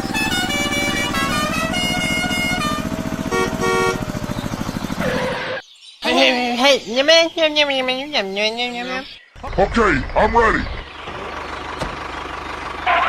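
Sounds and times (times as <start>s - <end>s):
horn short toots: 0.0s - 4.3s
engine putter: 0.0s - 5.6s, 9.4s - 13.0s.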